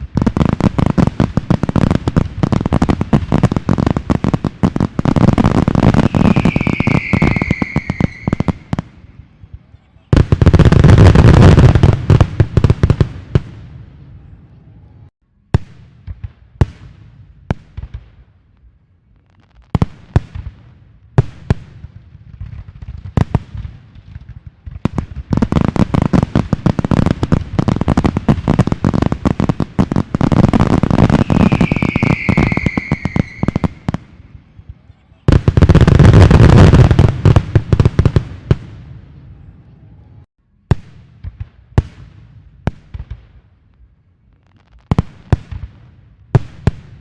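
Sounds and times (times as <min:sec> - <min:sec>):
fireworks crackling: 0:00.0 - 0:14.3, 0:15.6 - 0:39.4
fireworks sharp bangs: 0:00.0 - 0:14.4, 0:15.4 - 0:18.6, 0:19.4 - 0:39.5, 0:40.1 - 0:43.8, 0:44.4 - 0:47.0
high falling whistling tone: 0:05.9 - 0:08.8, 0:31.0 - 0:33.9.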